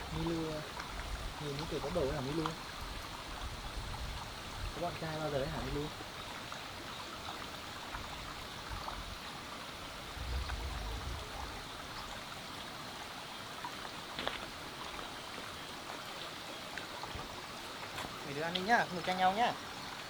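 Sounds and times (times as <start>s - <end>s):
running water hiss: 0.0s - 20.0s
low rumble: 10.0s - 12.2s.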